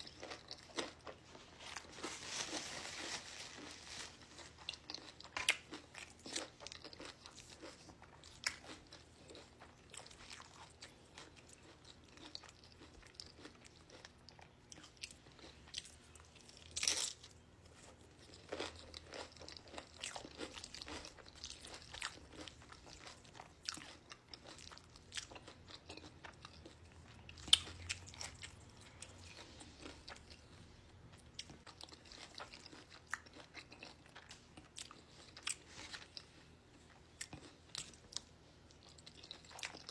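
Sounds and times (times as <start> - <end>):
crunching tortilla chips: 0.0 - 30.6
quiet chewing: 17.7 - 39.9.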